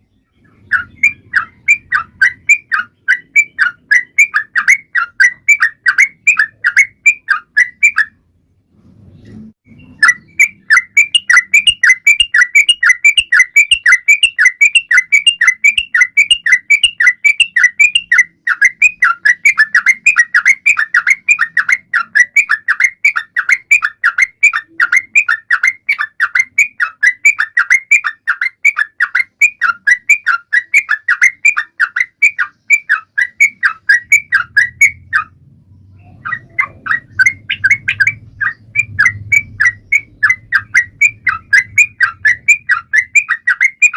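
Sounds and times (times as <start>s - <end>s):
bird singing falling notes: 9.1s - 43.9s.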